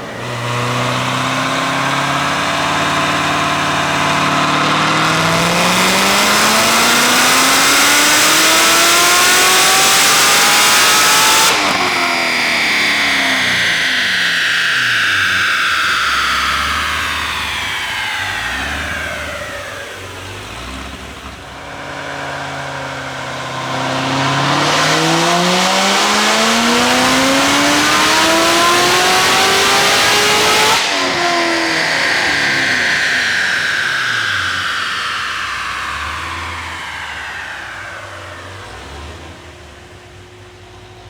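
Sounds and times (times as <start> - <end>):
supercharged engine revving: 0.0 - 41.0.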